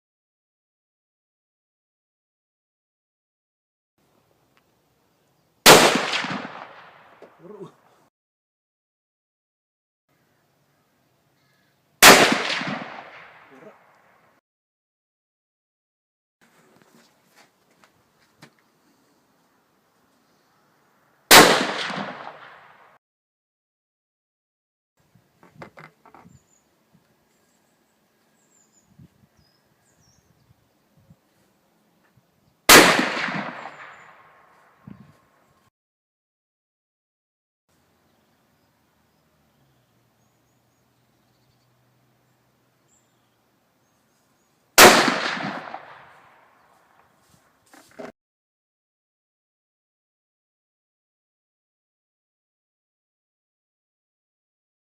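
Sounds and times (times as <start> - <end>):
rifle shot: 5.6 - 7.4, 12.0 - 14.1, 21.3 - 23.0, 32.7 - 34.5, 44.8 - 46.6.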